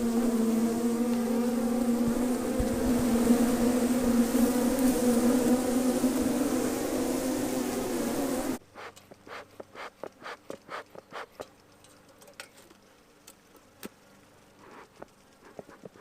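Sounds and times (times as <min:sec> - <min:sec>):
honeybees buzzing: 0:00.0 - 0:11.4.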